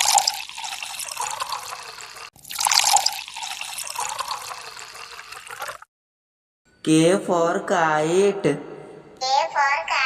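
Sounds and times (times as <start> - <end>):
water pouring from a jug: 0.0 - 5.9.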